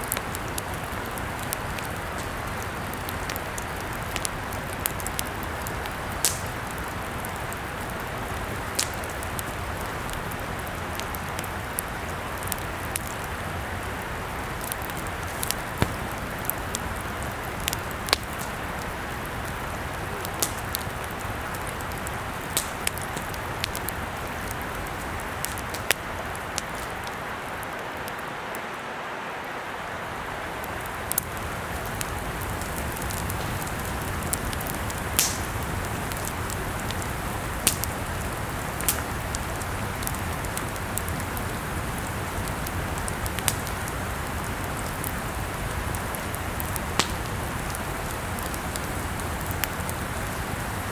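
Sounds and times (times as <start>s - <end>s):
campfire crackling and hissing: 0.0s - 50.9s.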